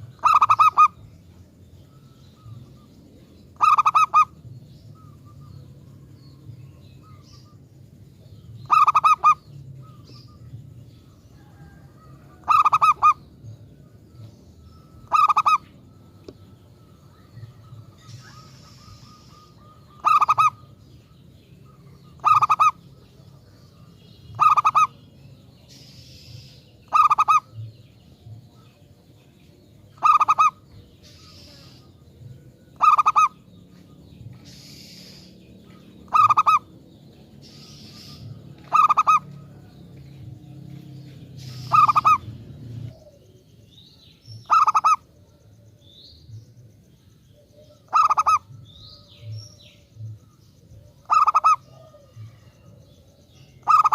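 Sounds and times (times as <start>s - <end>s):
dove cooing: 0.0s - 1.1s, 3.5s - 5.6s, 8.3s - 10.7s, 11.4s - 13.3s, 14.8s - 20.8s, 22.1s - 23.6s, 24.3s - 25.0s, 26.9s - 27.7s, 29.9s - 35.2s, 36.0s - 36.7s, 37.4s - 40.3s, 41.4s - 43.4s, 44.4s - 45.7s, 47.3s - 49.4s, 50.6s - 53.9s.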